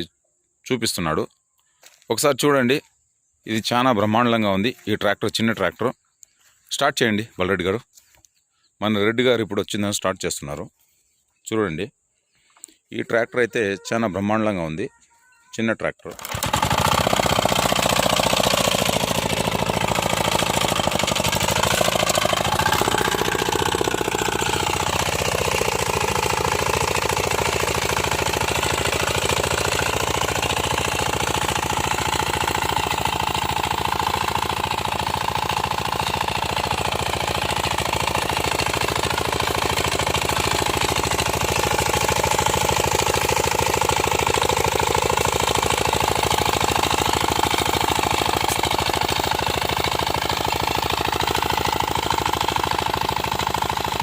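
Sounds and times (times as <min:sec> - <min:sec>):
tractor engine chugging: 0:16.1 - 0:54.0.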